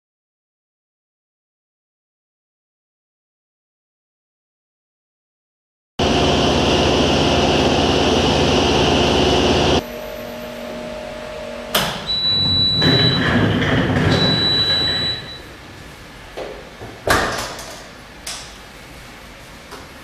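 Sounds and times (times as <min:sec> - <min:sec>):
laundry machine motor running: 0:06.0 - 0:15.4
high electronic tone: 0:14.1 - 0:15.6.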